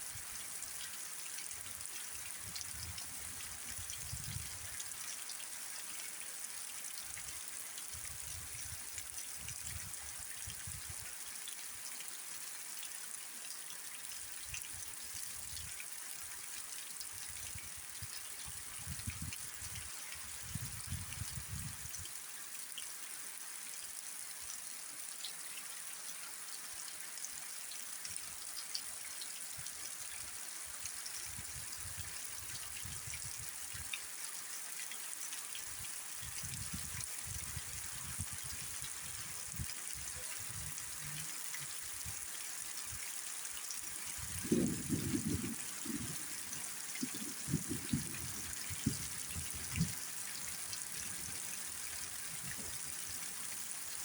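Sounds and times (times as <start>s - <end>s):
rain falling: 34.8s - 54.0s.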